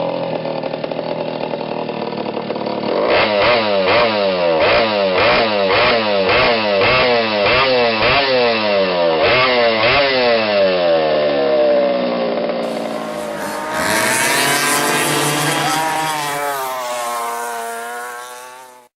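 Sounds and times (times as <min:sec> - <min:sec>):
go-kart engine revving: 0:00.0 - 0:18.9.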